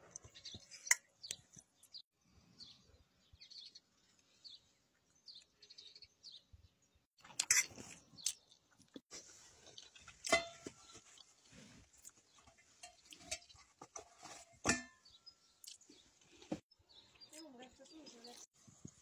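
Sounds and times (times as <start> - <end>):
fork scraping metal pot: 10.0 - 11.0, 12.5 - 15.1.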